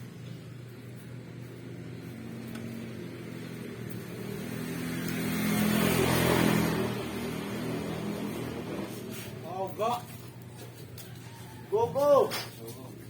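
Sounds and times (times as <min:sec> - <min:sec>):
small engine running: 0:00.0 - 0:09.7.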